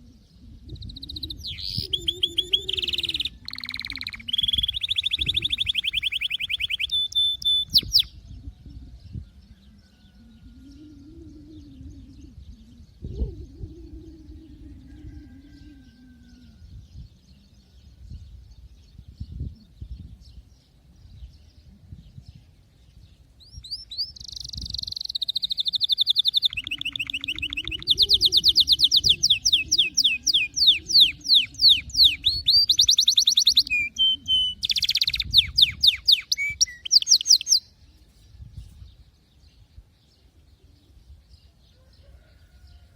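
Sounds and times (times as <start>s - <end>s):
canary singing fast trills: 0.6s - 8.2s, 23.4s - 38.9s.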